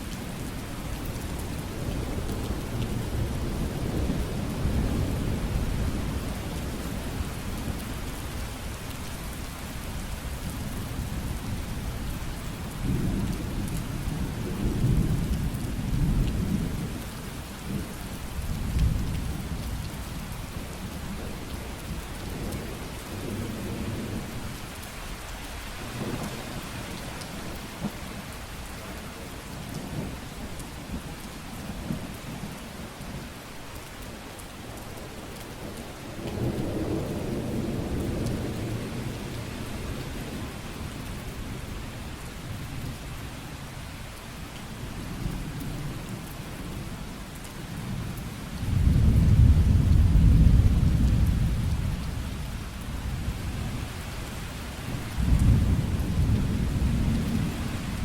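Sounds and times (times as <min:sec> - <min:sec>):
rain hissing: 0:47.9 - 0:58.0
rolling thunder: 0:48.6 - 0:52.4, 0:54.9 - 0:58.0.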